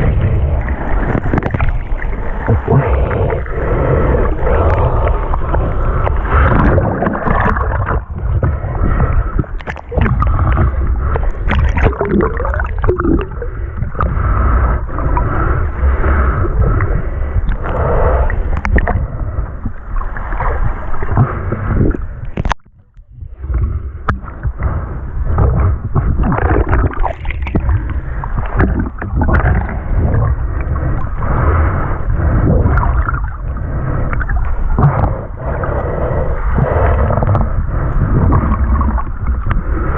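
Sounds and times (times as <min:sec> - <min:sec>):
sea water sloshing and gurgling: 0:00.0 - 0:39.9.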